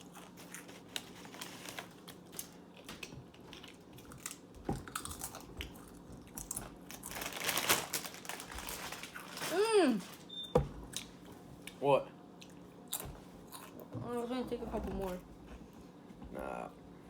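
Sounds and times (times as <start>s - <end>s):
chip bag rustling: 0.0s - 2.9s, 6.4s - 10.3s
crunchy chips being chewed: 0.0s - 9.6s, 12.4s - 13.8s.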